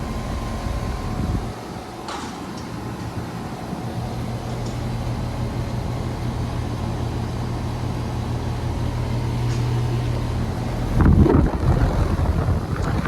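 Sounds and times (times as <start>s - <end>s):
air conditioner compressor hum: 0.0s - 13.0s
condenser fan whoosh: 0.0s - 13.0s
wind rumble on microphone: 0.3s - 1.5s, 10.7s - 13.0s.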